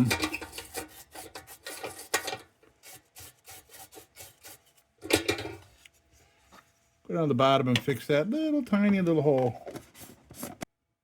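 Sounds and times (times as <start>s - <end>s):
rubbing and scraping on tin: 0.0s - 6.8s.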